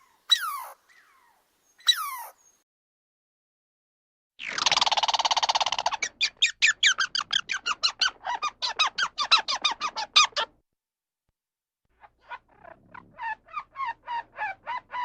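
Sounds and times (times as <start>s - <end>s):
animal squeaky notes: 0.3s - 0.8s, 1.8s - 2.4s.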